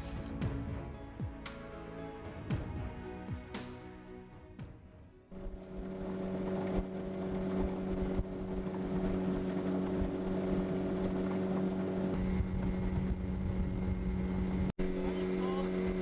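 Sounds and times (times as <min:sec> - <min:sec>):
motorboat engine running: 0:05.2 - 0:16.0
rough rushing wind noise: 0:12.0 - 0:15.0.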